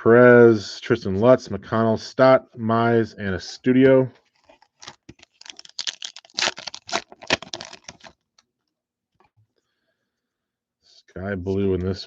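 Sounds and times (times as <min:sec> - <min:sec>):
cards and foil wrapper rustling: 0:04.2 - 0:08.2.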